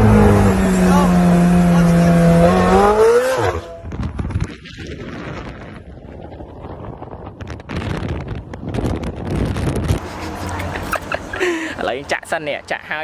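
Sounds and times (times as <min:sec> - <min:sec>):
supercar engine running: 0:00.0 - 0:04.2
low rumbling and rustling: 0:00.0 - 0:11.4.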